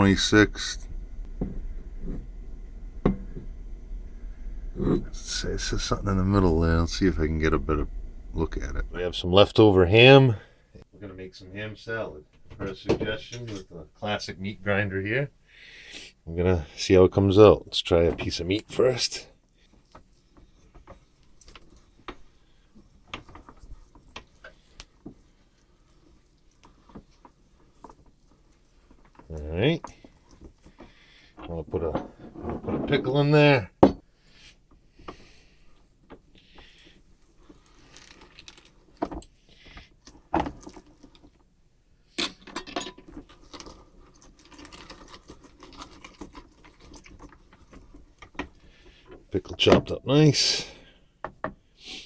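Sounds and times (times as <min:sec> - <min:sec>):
loud knocks: 0:00.0 - 0:09.0.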